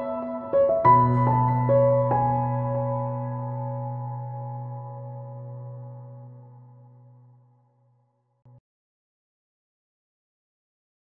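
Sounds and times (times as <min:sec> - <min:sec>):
ambient background music: 0:00.0 - 0:07.3.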